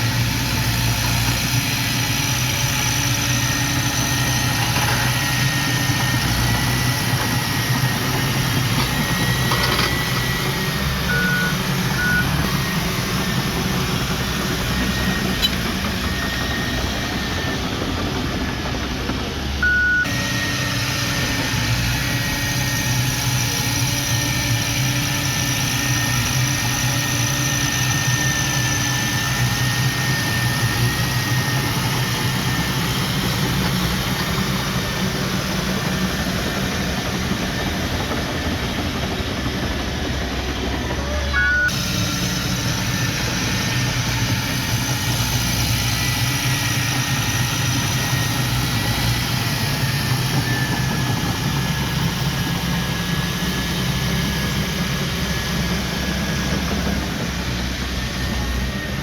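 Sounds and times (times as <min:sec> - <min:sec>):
diesel engine running: 0:00.0 - 0:59.0
short high beeps: 0:19.6 - 0:20.1, 0:41.3 - 0:41.8.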